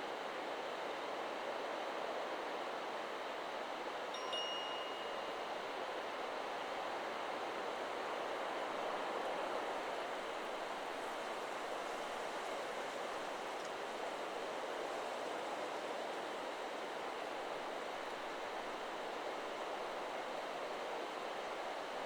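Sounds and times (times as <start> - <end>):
wind rustling through trees: 2.3 - 22.0
wind chime ringing: 4.2 - 5.3.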